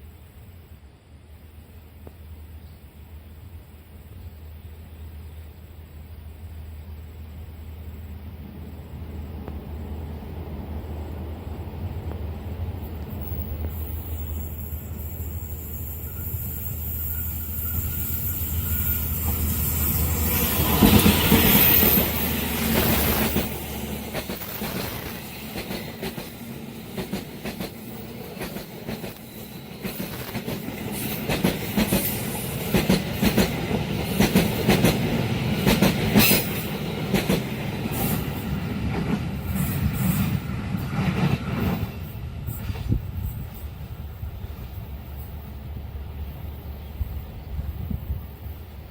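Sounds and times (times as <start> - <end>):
diesel locomotive passing: 0.0 - 48.9
train wheels clickety-clack: 12.0 - 45.6.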